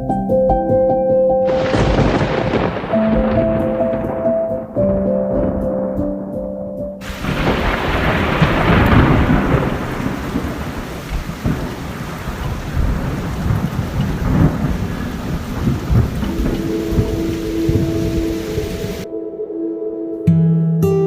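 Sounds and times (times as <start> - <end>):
heavy rain: 1.5 - 4.7, 7.0 - 19.1
thunder rumbling: 1.5 - 6.2, 7.0 - 19.1.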